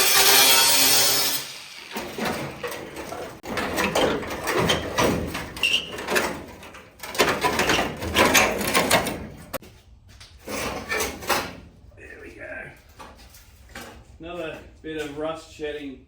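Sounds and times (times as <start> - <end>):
sheet metal scraping and clattering: 0.0 - 9.6, 10.4 - 11.8.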